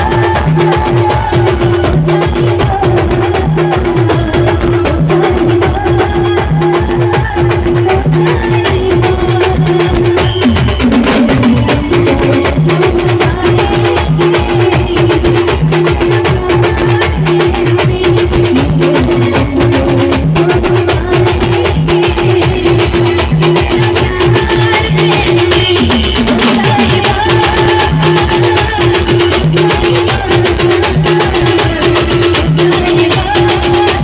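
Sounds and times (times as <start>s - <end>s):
fast drum and percussion: 0.0s - 34.0s.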